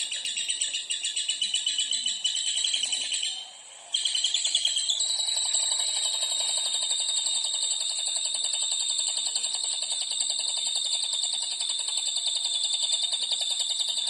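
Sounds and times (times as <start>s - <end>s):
songbird trilling: 0.0s - 9.6s.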